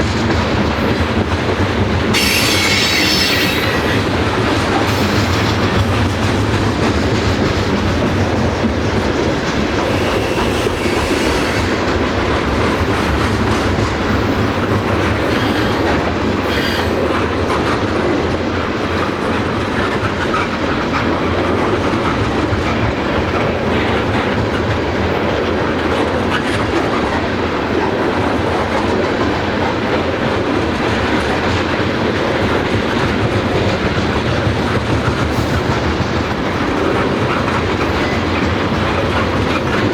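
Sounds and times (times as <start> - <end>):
train cars rolling on rails: 0.0 - 39.9
wheels clicking over rail joints: 0.0 - 39.9
faint wheel squeal: 2.2 - 4.1, 9.8 - 11.8, 15.0 - 17.2.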